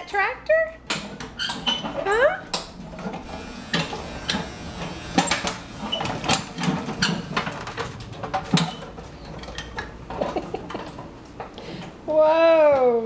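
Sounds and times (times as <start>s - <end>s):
plastic toy tractor clattering: 5.2s - 11.1s.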